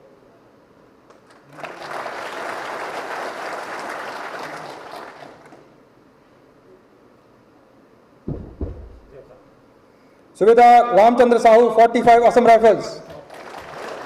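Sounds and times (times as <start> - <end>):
audience applauding: 1.2 - 5.7, 13.1 - 14.0.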